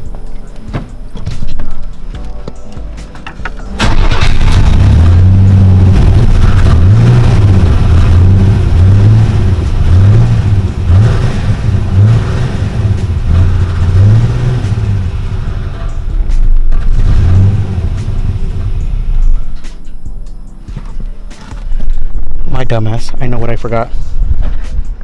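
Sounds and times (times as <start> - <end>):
truck engine revving: 3.8 - 19.9.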